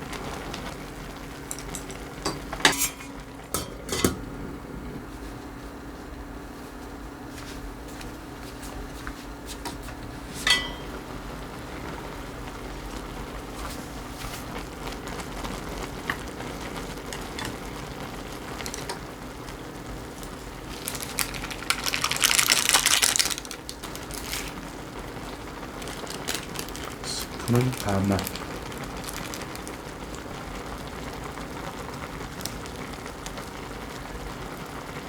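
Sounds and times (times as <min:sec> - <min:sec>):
steady low hum: 0:00.0 - 0:34.7
metal clink: 0:10.5 - 0:10.9.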